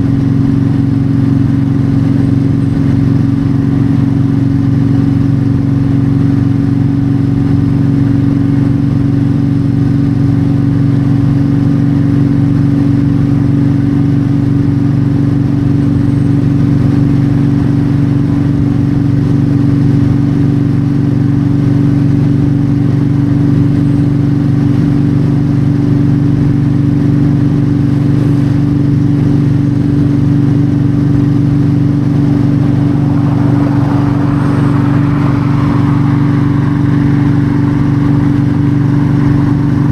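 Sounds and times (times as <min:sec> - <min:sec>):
motorcycle engine cruising: 0:00.0 - 0:39.9
road noise: 0:00.0 - 0:39.9
rush of noise: 0:27.8 - 0:39.9
wind noise: 0:27.9 - 0:39.9.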